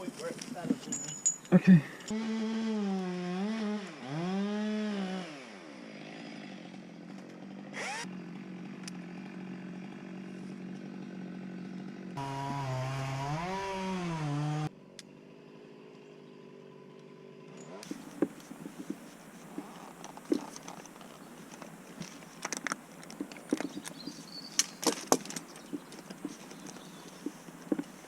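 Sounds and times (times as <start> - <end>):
chainsaw running at high revs: 2.1 - 14.7.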